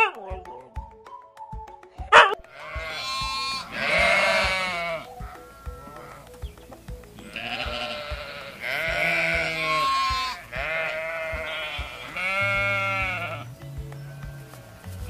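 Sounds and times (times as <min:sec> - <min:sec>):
sheep bleating: 0:02.5 - 0:06.3, 0:07.2 - 0:13.5.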